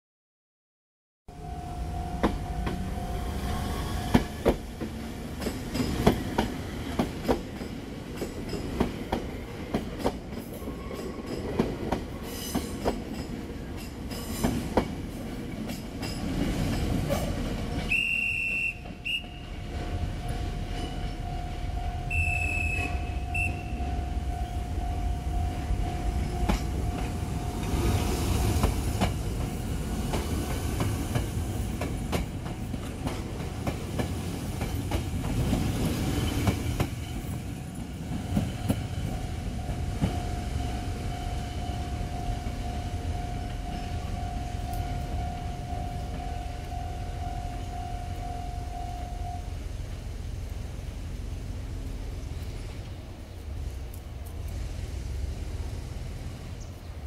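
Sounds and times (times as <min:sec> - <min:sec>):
electric trains running: 0:01.4 - 0:56.8
brief high-pitched tones: 0:21.8 - 0:25.7
wheels clicking over rail joints: 0:22.0 - 0:41.1.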